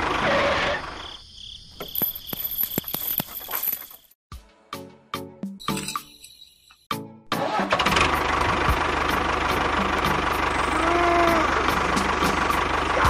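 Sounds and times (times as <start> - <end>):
small engine starting and running: 7.3 - 13.0.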